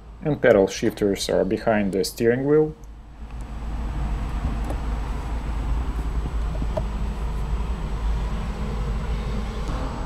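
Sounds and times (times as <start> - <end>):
car engine idling: 2.9 - 10.0.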